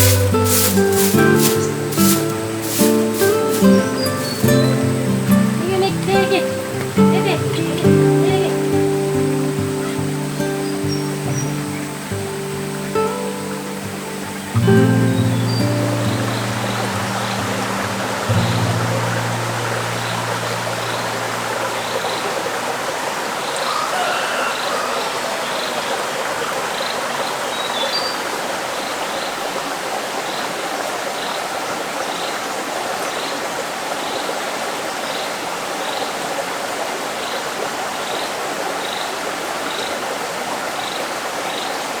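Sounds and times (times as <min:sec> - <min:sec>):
short high chirp: 0:00.0 - 0:04.9
bird-like calls: 0:00.0 - 0:13.2
running water: 0:00.0 - 0:42.0.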